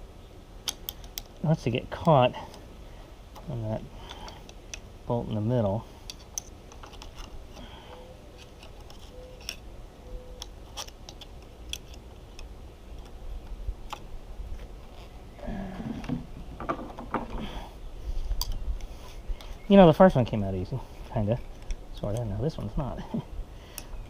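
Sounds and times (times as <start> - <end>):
pry tool clicking and scraping: 10.4 - 13.1.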